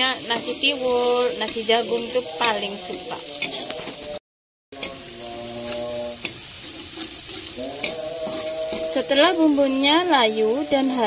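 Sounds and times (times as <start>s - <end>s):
spice paste sizzling in a wok: 0.0s - 4.2s, 4.8s - 11.0s
metal spatula scraping and tapping: 0.2s - 2.6s, 3.4s - 4.1s, 4.8s - 9.6s.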